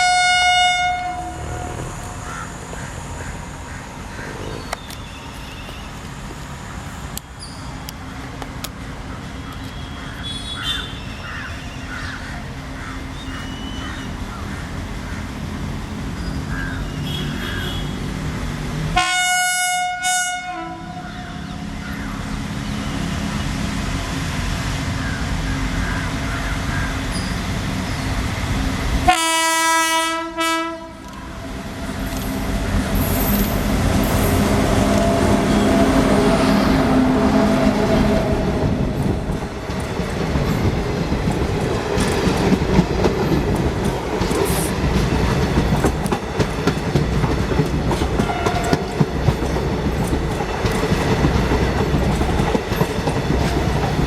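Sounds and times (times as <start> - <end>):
locomotive horn blasts: 0.0 - 2.2, 16.9 - 18.1, 19.0 - 21.0, 29.1 - 31.2, 34.2 - 38.6, 48.2 - 49.0
train rumbling: 0.0 - 54.0.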